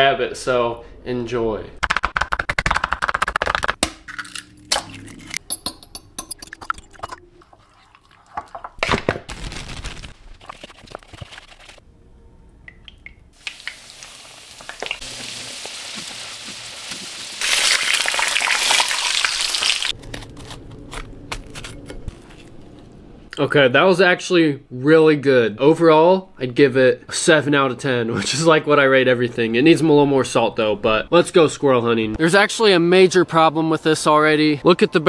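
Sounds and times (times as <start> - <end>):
fork whisking eggs in bowl: 7.4 - 8.8
meat sizzling in hot oil: 13.4 - 19.9.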